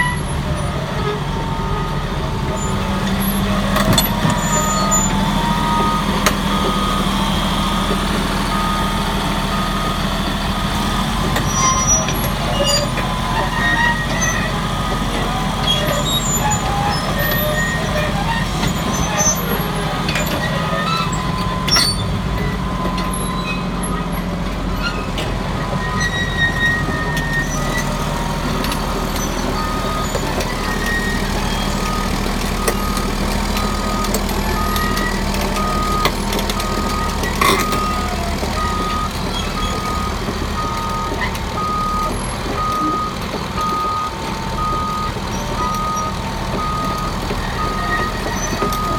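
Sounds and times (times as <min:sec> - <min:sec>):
diesel engine running: 0:00.0 - 0:48.9
reverse alarm beeping: 0:29.4 - 0:48.9.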